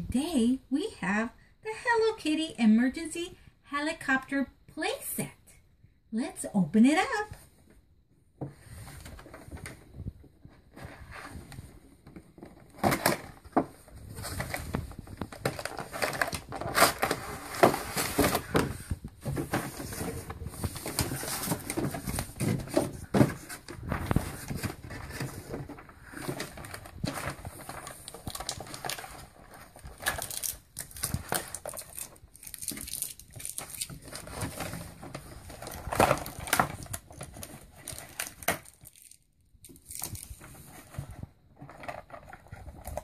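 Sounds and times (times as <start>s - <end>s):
packaging knocks and crackles: 12.0s - 43.0s
toy packaging crinkling: 23.8s - 40.6s.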